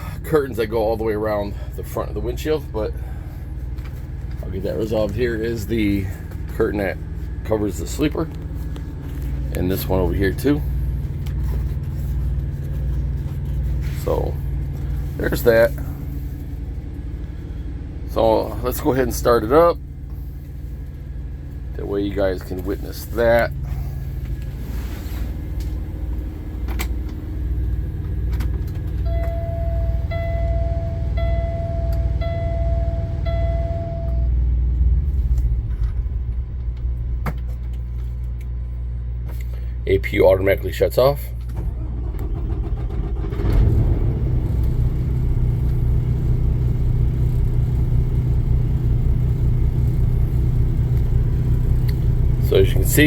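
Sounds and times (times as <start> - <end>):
diesel truck engine idling: 0.0 - 53.0
dashboard warning chime beeping: 29.0 - 34.4.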